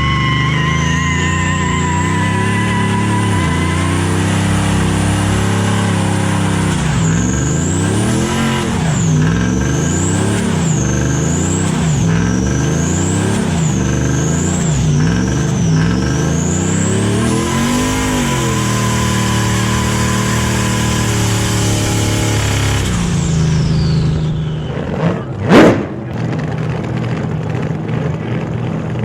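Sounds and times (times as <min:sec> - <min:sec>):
engine idling and revving: 0:00.0 - 0:29.0
high whine: 0:14.5 - 0:26.3.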